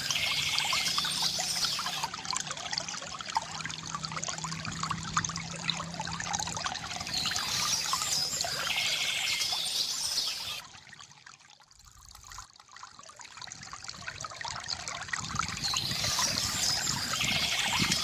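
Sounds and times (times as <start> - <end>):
birds chirping: 0.0 - 2.1, 7.0 - 10.6, 15.6 - 18.0
water trickling and gurgling: 0.0 - 18.0.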